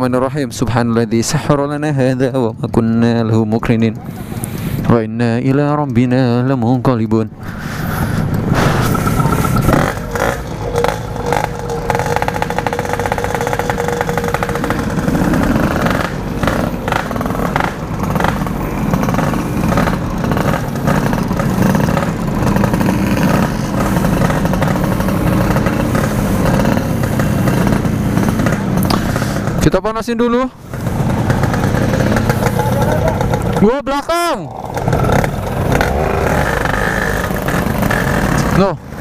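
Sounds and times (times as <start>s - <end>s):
two-stroke motorcycle engine revving: 7.3s - 29.8s, 30.6s - 39.0s.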